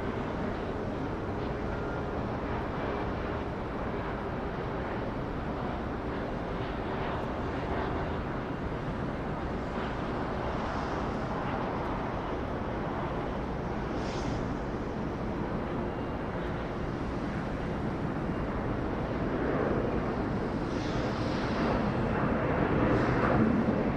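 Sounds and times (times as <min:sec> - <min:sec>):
jet aircraft engine rumble: 0:00.0 - 0:23.9.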